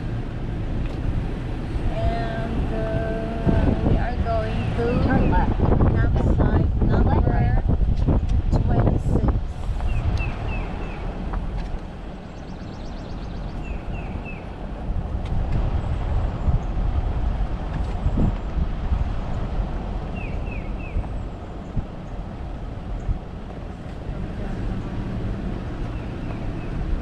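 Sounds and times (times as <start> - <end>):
car rolling with engine rumble: 0.0 - 27.0
bird chirping: 9.8 - 11.1, 12.2 - 14.5, 20.1 - 22.2, 25.8 - 26.9.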